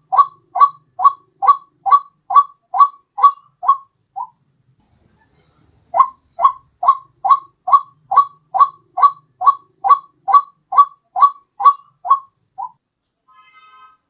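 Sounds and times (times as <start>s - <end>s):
bird calling short identical calls: 6.0s - 12.8s.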